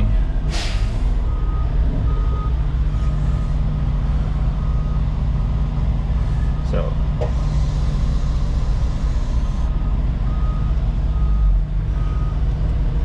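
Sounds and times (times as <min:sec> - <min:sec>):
diesel machinery running: 0:00.0 - 0:13.0.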